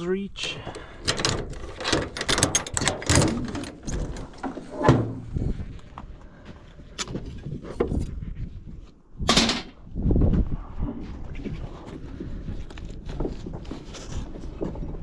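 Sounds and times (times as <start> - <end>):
metal gear knocking and clanking: 1.0 - 4.5.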